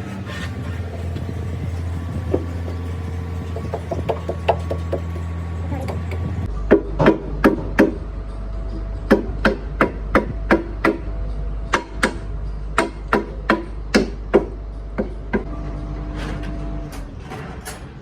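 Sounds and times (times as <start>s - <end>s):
hammer blows: 0.0s - 8.0s
steady low hum: 0.0s - 17.0s.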